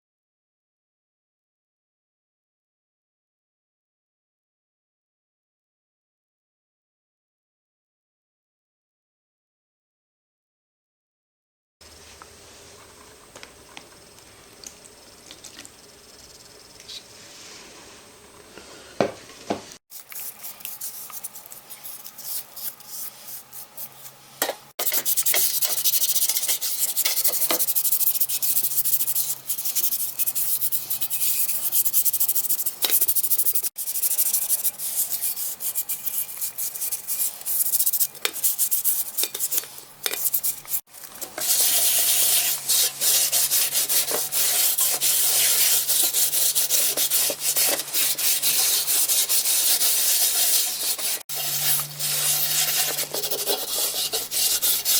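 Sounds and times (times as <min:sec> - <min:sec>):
abrasive sanding rasp: 0:24.8 - 0:54.9.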